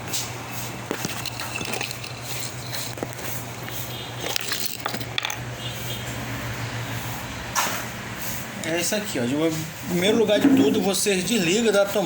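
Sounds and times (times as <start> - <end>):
objects clicking and clinking: 0.9 - 5.4.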